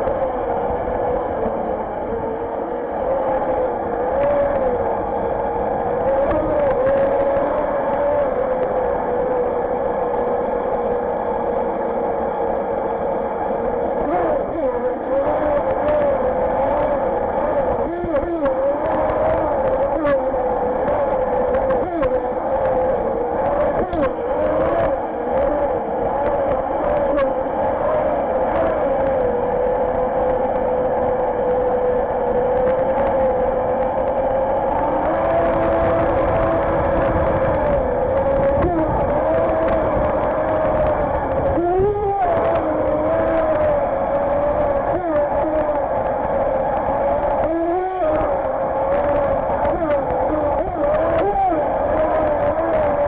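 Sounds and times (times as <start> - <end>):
model boat motor whining: 0.0 - 53.0
water rushing: 11.2 - 53.0.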